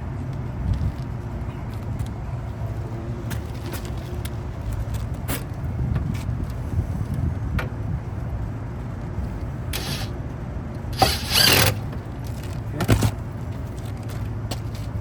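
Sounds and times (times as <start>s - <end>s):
steady low rumble: 0.0s - 15.0s
short clicks and scrapes: 9.8s - 10.1s.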